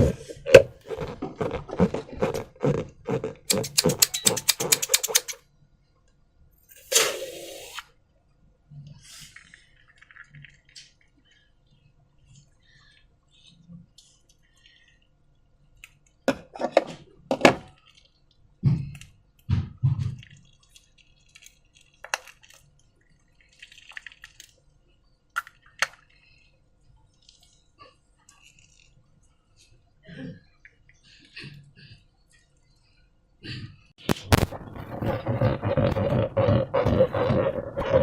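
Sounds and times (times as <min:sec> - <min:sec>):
slime squelching: 0:00.0 - 0:05.4, 0:34.0 - 0:38.0.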